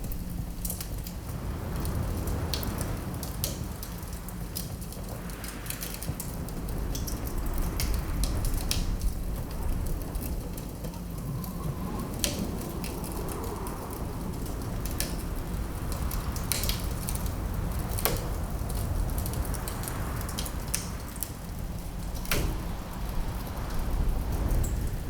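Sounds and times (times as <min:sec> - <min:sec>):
wind blowing: 0:00.0 - 0:25.0
wood fire crackling: 0:00.0 - 0:25.0
low rumble: 0:04.9 - 0:20.2.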